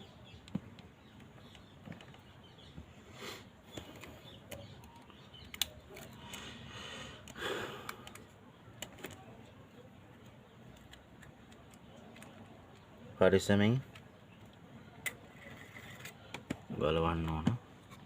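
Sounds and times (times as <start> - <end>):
small parts clicking and tapping: 3.7 - 6.5, 7.2 - 9.3, 10.2 - 12.9.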